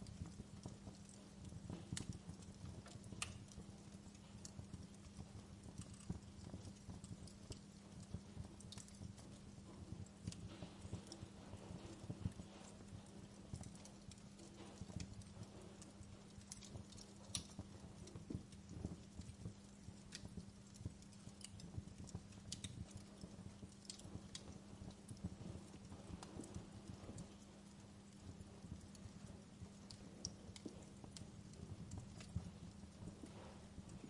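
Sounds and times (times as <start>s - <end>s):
faint low hum: 0.0s - 34.0s
wood fire crackling: 0.0s - 34.0s.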